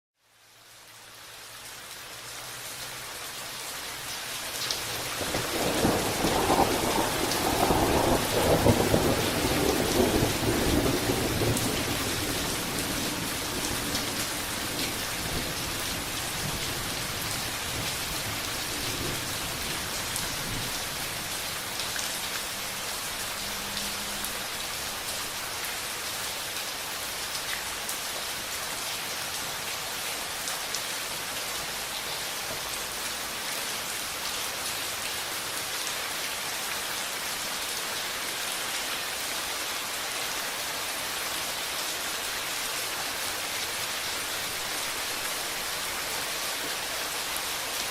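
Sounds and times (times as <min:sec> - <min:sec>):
steady rain falling: 0:00.2 - 0:47.9
thunder rumbling: 0:05.2 - 0:15.6.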